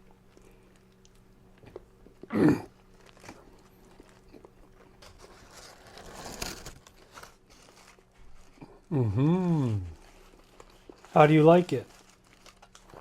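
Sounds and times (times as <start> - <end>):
person chewing: 0.0 - 5.0
faint steady hum: 0.0 - 13.0
paper wrapper crinkling: 2.8 - 13.0.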